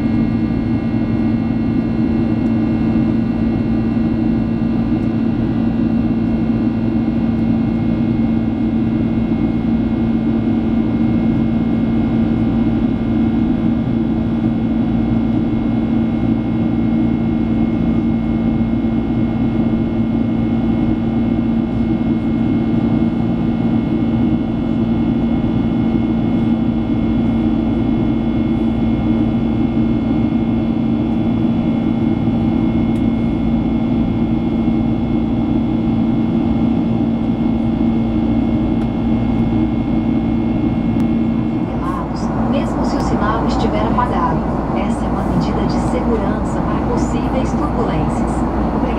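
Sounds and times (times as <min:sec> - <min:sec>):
aircraft cabin drone: 0:00.0 - 0:48.9
constant whining tones: 0:40.3 - 0:48.9.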